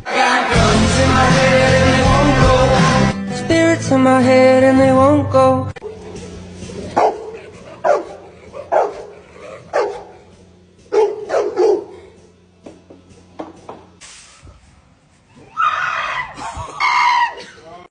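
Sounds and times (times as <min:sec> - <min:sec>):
dog barking: 0:06.9 - 0:10.3, 0:10.9 - 0:12.1.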